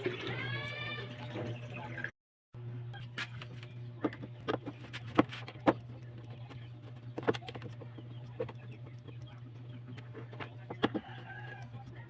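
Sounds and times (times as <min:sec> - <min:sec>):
steady low hum: 0:01.2 - 0:12.0
sharp irregular clicks and knocks: 0:03.3 - 0:12.0.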